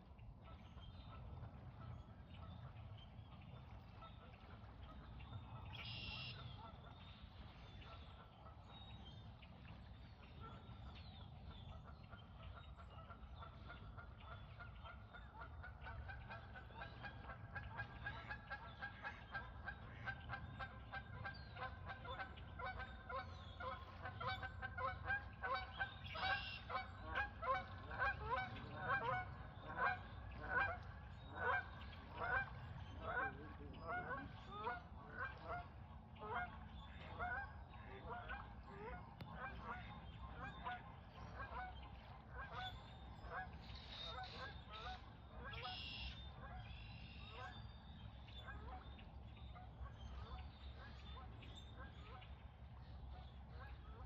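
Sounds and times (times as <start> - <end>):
geese honking: 12.9 - 47.5.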